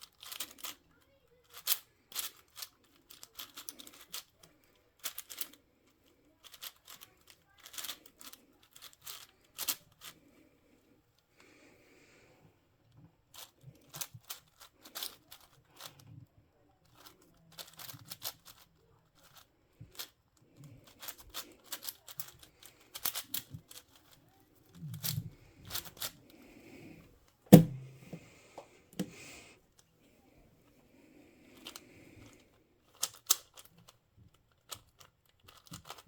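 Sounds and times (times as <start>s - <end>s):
sharp knock: 27.5s - 28.2s
puzzle cube clicking: 32.9s - 33.7s.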